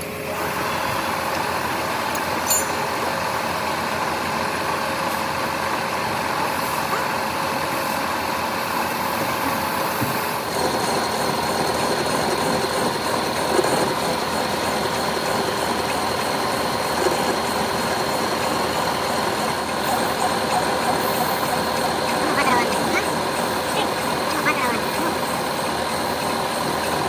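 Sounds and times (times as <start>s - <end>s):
workshop machinery whining: 0.0s - 27.0s.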